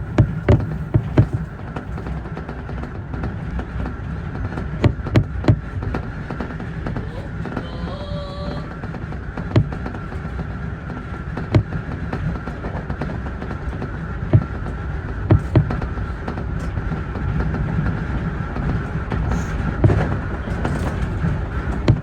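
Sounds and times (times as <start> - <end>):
train wheels rumbling on track: 0.0 - 22.0
wheels clacking over rail joints: 0.0 - 22.0
electric train whine: 5.7 - 22.0.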